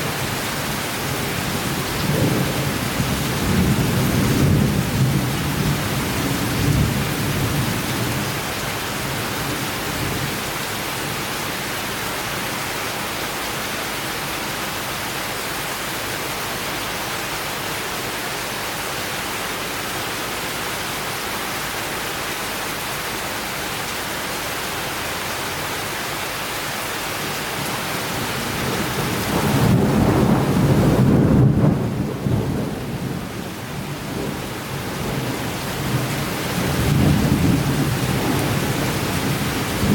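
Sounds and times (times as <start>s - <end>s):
steady rain: 0.0s - 39.9s
thunder rumbling: 27.6s - 33.4s.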